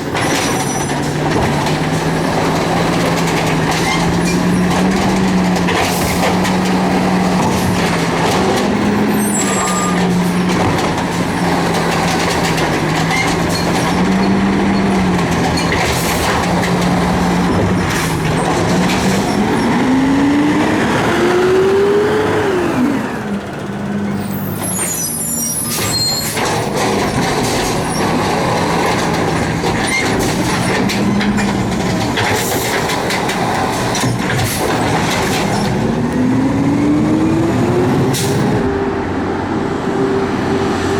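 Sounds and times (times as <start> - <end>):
garbage truck engine running: 0.0 - 40.7
air brakes hissing: 24.3 - 26.4.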